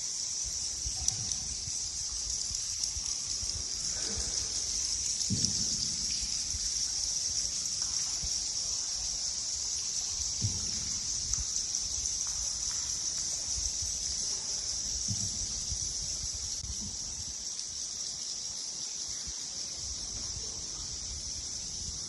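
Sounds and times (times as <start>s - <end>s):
low thud: 5.2s - 6.2s, 10.4s - 11.0s.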